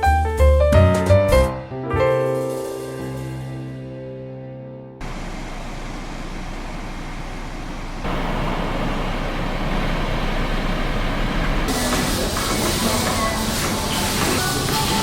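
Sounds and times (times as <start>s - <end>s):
piano music: 0.0s - 5.0s, 11.7s - 15.0s
road traffic rumbling hiss: 5.0s - 15.0s.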